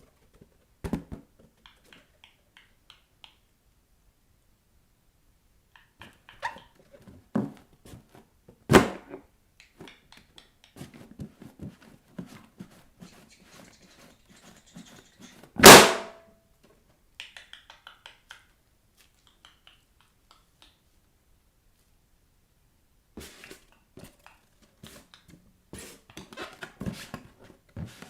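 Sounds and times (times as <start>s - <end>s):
balloons bursting: 15.6s - 16.2s
balloons squeaking under feet: 26.2s - 26.8s.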